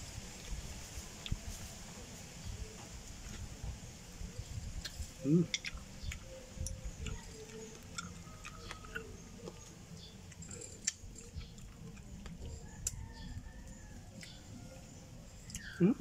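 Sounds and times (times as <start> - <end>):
person chewing with mouth clicks: 4.8 - 13.0, 14.1 - 14.4, 15.4 - 16.0.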